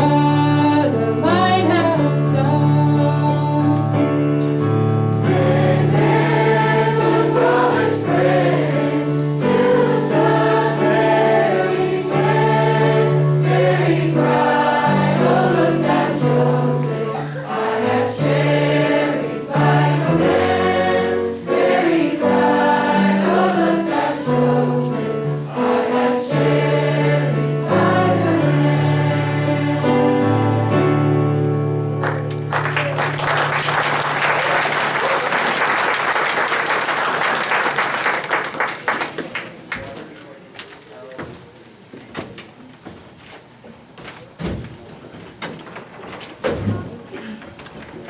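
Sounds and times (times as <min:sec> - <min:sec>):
choir singing: 0:05.1 - 0:31.6.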